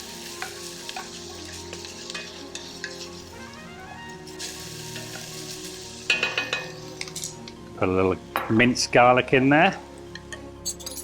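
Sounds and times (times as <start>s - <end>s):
vegetables sizzling in hot oil: 0.0s - 7.6s
soft background music: 0.0s - 11.0s.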